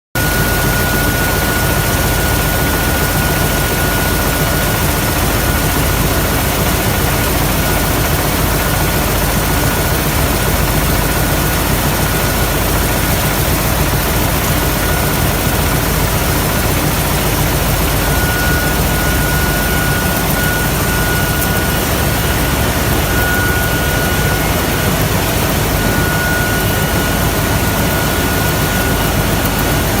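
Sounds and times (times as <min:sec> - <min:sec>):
rapid mechanical clatter: 0:00.2 - 0:30.0
thin high whine: 0:14.4 - 0:29.8.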